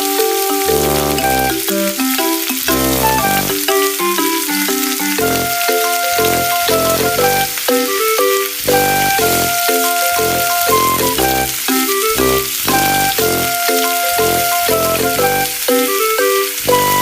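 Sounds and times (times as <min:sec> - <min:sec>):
background music with bass: 0:00.7 - 0:01.7, 0:02.7 - 0:03.6, 0:06.2 - 0:07.5, 0:10.2 - 0:13.6, 0:14.2 - 0:15.6.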